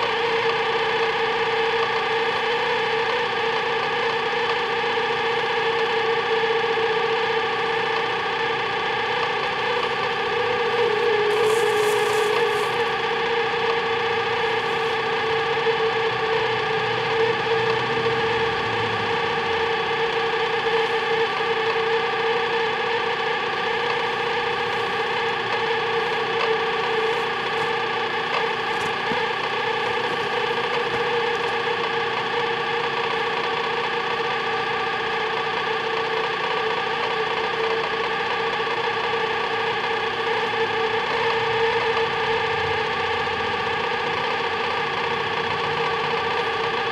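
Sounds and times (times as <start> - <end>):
microwave oven humming: 0.0 - 46.9.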